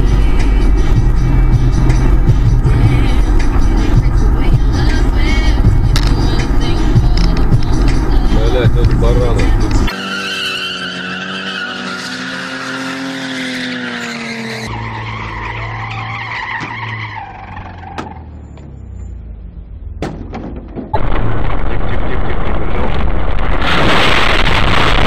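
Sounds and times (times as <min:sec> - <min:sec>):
tyres skidding: 0:00.0 - 0:24.0
car engine revving: 0:00.0 - 0:25.0
road noise: 0:00.0 - 0:25.0
sharp knocks: 0:20.0 - 0:21.0.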